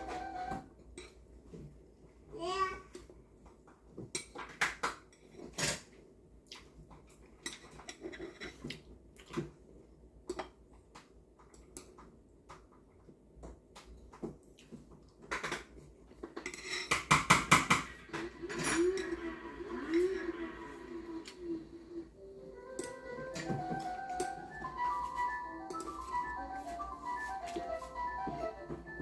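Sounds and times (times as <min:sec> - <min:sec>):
utensils clinking on dishes: 0:16.2 - 0:20.2.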